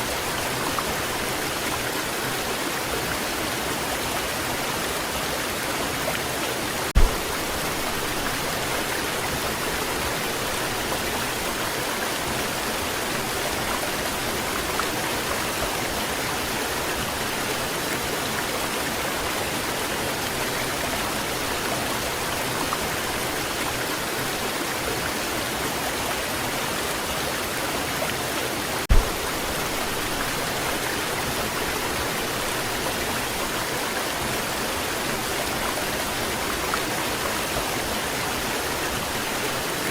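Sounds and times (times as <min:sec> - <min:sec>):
waterfall rushing: 0:00.0 - 0:39.9
low thumps: 0:07.0 - 0:08.1, 0:28.9 - 0:30.2.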